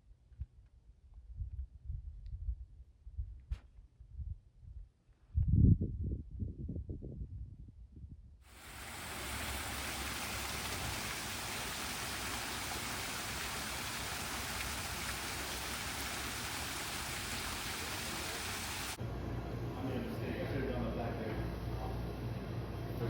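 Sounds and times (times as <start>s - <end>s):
rushing water: 8.5s - 19.0s.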